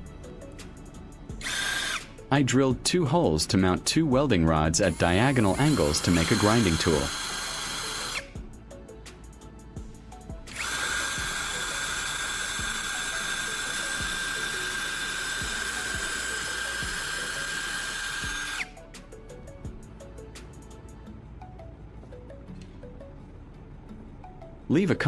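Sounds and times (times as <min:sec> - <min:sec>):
soft background music: 0:00.0 - 0:25.0
electric drill boring into wood: 0:01.3 - 0:02.3, 0:04.8 - 0:08.4, 0:10.4 - 0:18.8.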